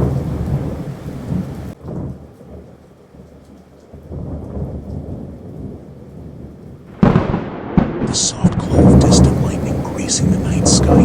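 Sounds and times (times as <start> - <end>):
rolling rumble of thunder: 0.0 - 11.0
steady rain: 0.0 - 11.0.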